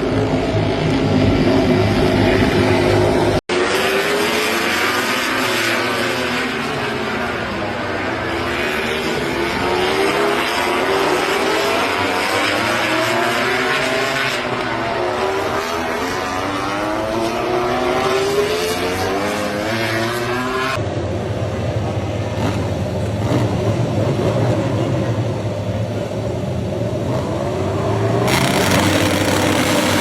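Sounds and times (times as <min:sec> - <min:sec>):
racing motorcycle engine revving: 0:00.0 - 0:20.8, 0:22.2 - 0:25.7, 0:26.6 - 0:30.0.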